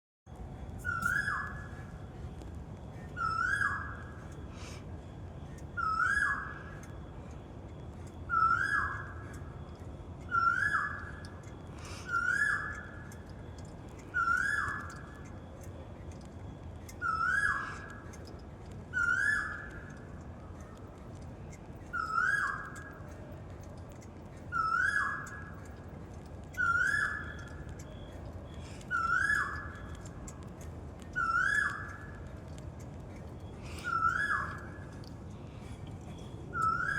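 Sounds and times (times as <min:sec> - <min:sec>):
bird whistled call: 0:00.8 - 0:02.0, 0:02.9 - 0:04.8, 0:05.5 - 0:06.9, 0:08.2 - 0:09.5, 0:10.2 - 0:13.3, 0:14.0 - 0:15.2, 0:16.8 - 0:18.1, 0:18.9 - 0:20.8, 0:21.8 - 0:23.0, 0:24.5 - 0:25.7, 0:26.5 - 0:30.2, 0:31.0 - 0:32.3, 0:33.4 - 0:35.1, 0:36.1 - 0:36.9.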